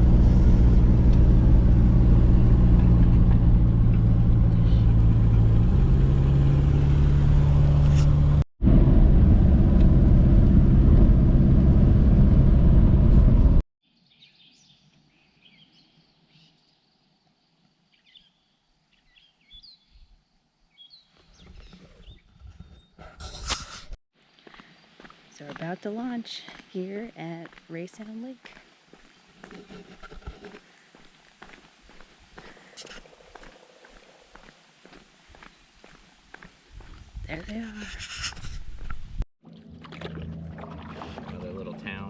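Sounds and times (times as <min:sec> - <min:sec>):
car engine and road noise: 0:00.0 - 0:13.6.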